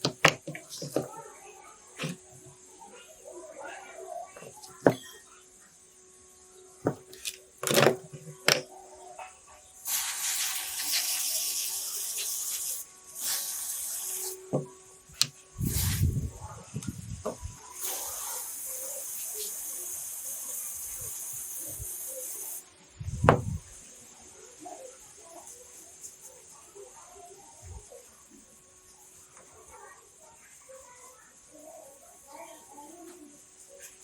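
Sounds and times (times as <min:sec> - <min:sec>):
handling knocks and thumps: 0:00.0 - 0:01.1, 0:06.8 - 0:08.6, 0:23.2 - 0:23.6
spraying hiss: 0:09.8 - 0:14.6, 0:15.2 - 0:16.4, 0:17.2 - 0:22.6.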